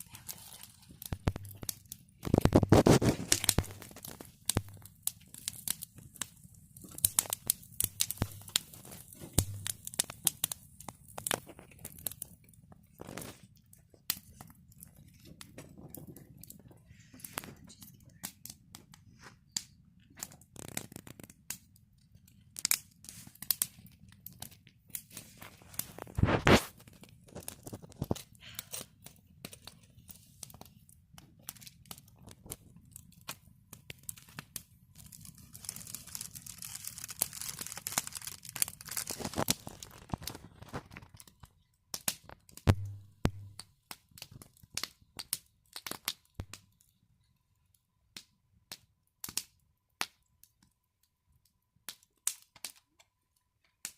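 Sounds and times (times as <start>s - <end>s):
fire hissing: 0.0s - 12.3s, 25.0s - 29.0s, 34.2s - 40.7s
campfire crackling: 0.0s - 53.9s.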